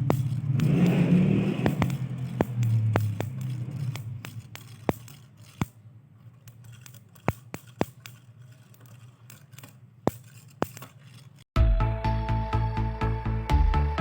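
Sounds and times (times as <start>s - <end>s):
sharp irregular clicks: 0.0s - 5.8s, 6.4s - 11.5s
faint scraping: 0.0s - 11.5s.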